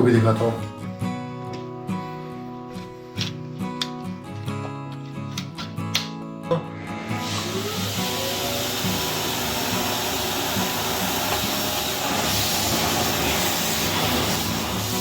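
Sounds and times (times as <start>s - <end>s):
vacuum cleaner running: 6.8s - 15.0s.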